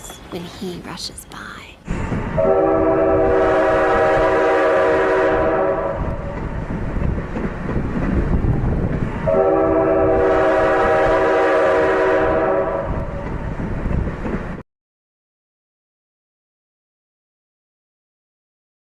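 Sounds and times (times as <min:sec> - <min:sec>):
train rumbling and clattering: 0:00.0 - 0:14.6
boat horn blasts: 0:02.4 - 0:06.2, 0:09.3 - 0:13.1.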